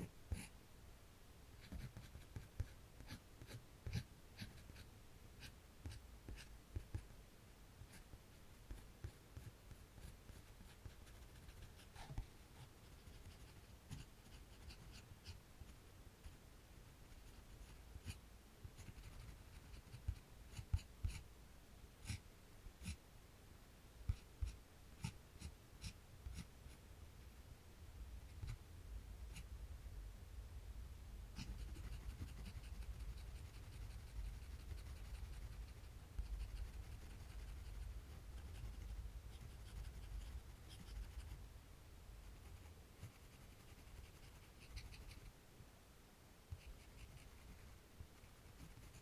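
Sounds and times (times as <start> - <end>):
drawing tool scratching paper: 1.6 - 4.8, 8.7 - 12.2, 12.8 - 15.4, 18.8 - 21.2, 31.4 - 41.4, 42.3 - 45.3, 46.5 - 49.0.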